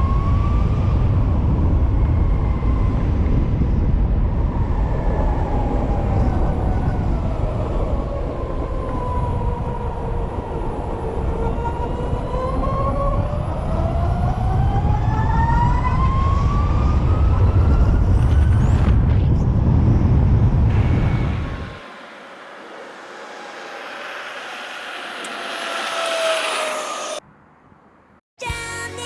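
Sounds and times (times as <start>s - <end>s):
electric motorcycle whining: 20.7s - 27.2s.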